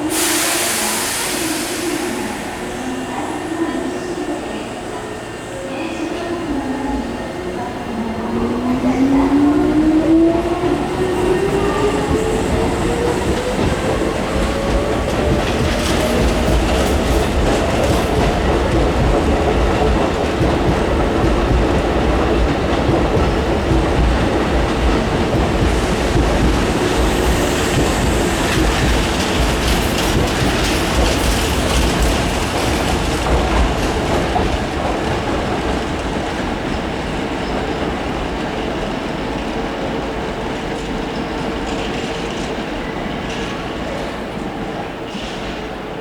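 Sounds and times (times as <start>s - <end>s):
train wheels clattering over rail joints: 11.3s - 42.6s.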